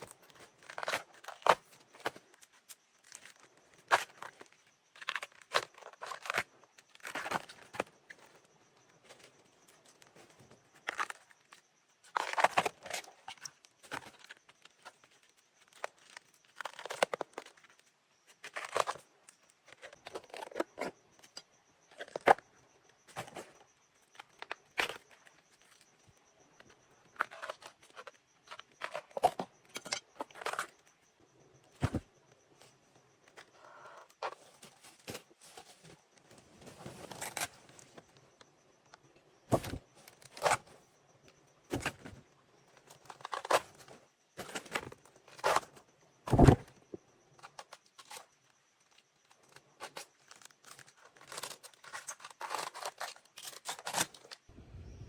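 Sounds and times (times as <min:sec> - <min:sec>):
faint high whine: 0:54.5 - 0:55.0.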